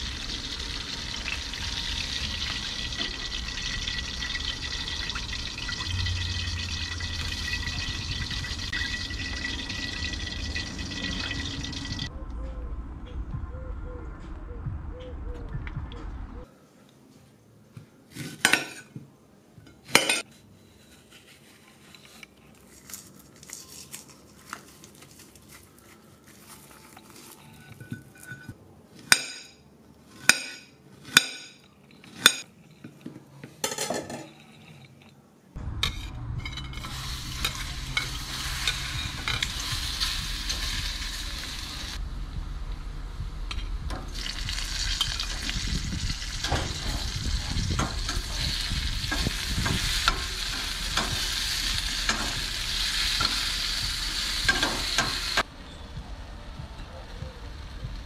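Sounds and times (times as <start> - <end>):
banana slices sizzling in oil: 0.0 - 12.1, 36.8 - 42.0, 44.0 - 55.5.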